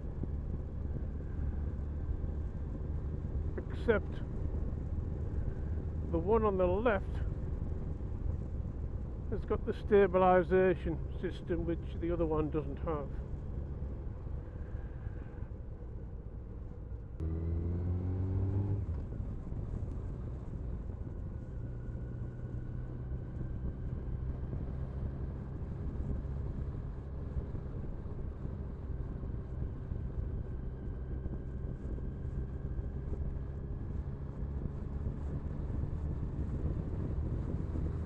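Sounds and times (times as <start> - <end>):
road noise: 0.0 - 38.0
motorcycle engine accelerating: 17.2 - 38.0.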